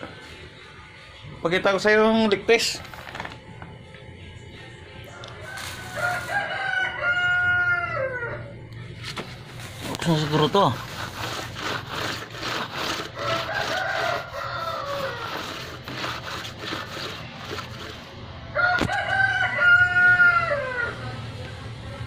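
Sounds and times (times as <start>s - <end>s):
rooster crowing: 5.1s - 8.6s, 13.1s - 15.8s, 18.5s - 21.2s
scraping noise: 9.3s - 18.1s.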